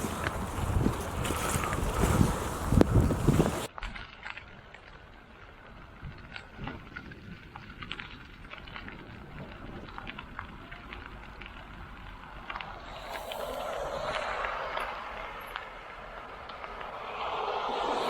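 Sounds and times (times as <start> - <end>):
low wind rumble: 0.0 - 3.7, 5.8 - 18.0
raindrops tapping: 0.0 - 3.7, 4.8 - 18.0
broad hiss: 12.6 - 18.0.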